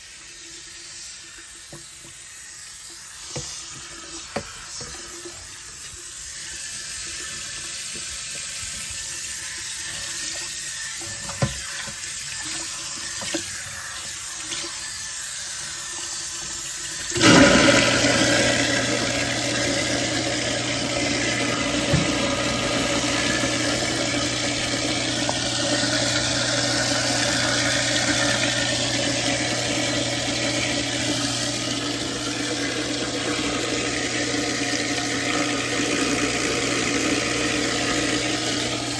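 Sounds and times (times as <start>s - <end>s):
garbage disposal humming: 0.0s - 38.9s
water running into sink: 0.0s - 38.9s.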